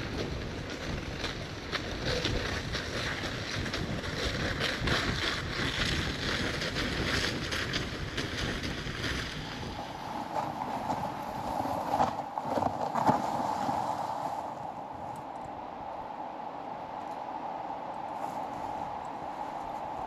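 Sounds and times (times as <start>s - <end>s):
strong wind buffeting microphone: 0.0s - 20.0s.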